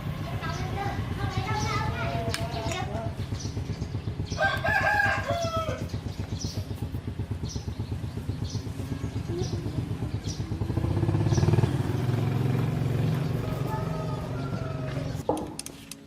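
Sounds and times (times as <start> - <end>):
small engine running: 0.0 - 15.2
rooster crowing: 4.4 - 5.9, 13.4 - 15.2.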